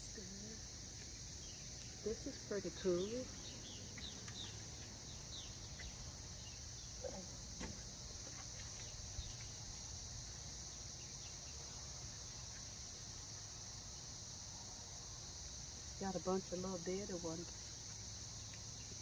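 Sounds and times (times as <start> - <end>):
insect chorus chirring: 0.0 - 19.0
bird chirps: 3.0 - 7.0.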